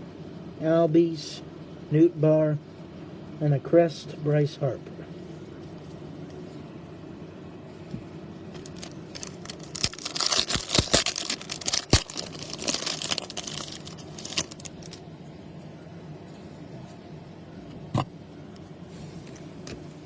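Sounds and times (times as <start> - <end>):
low room hum: 0.0 - 20.0
foil wrapper tearing and crinkling: 8.5 - 15.0.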